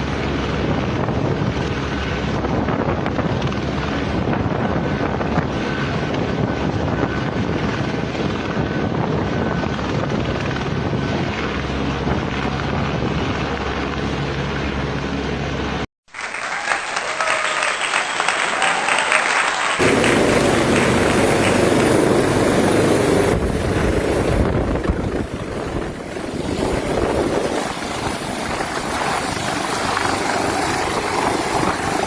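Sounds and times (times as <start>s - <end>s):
helicopter engine and rotor: 0.0s - 15.8s, 19.8s - 32.0s
loud hissing crackling noise: 19.2s - 32.0s
deep rumble: 19.8s - 32.0s.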